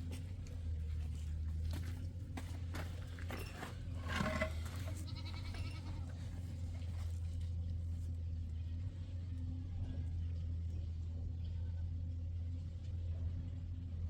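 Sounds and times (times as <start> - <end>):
goat bleating: 4.1 - 6.5.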